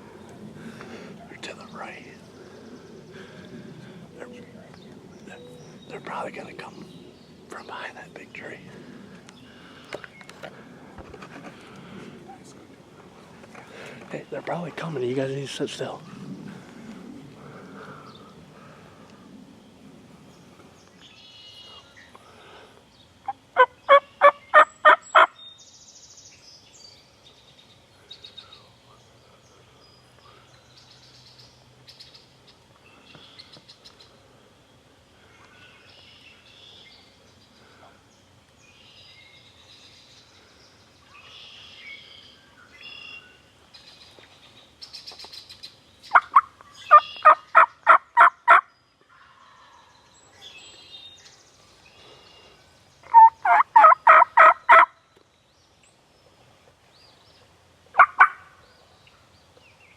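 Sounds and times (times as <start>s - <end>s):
faint songbird chirps: 1.2s - 8.7s, 17.8s - 47.8s, 48.5s - 59.9s
turkey calling: 23.3s - 25.3s, 46.1s - 48.6s, 53.0s - 54.9s, 58.0s - 58.5s.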